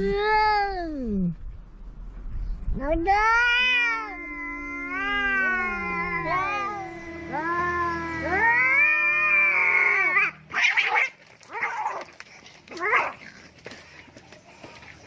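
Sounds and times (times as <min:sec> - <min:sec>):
harsh cat outbursts: 0:03.2 - 0:12.0
cats yowling: 0:03.2 - 0:12.1, 0:12.7 - 0:13.2.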